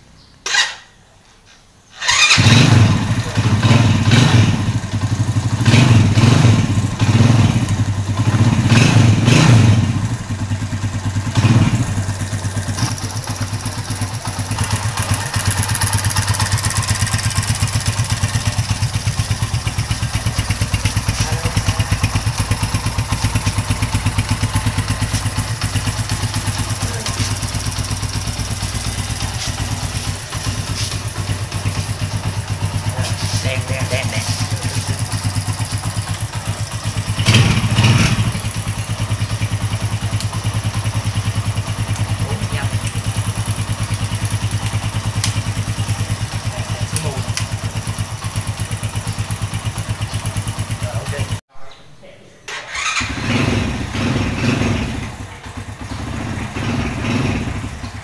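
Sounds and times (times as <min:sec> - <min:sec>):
motorcycle engine starting and revving: 0:00.4 - 0:01.0, 0:01.9 - 0:51.5, 0:52.5 - 0:58.0.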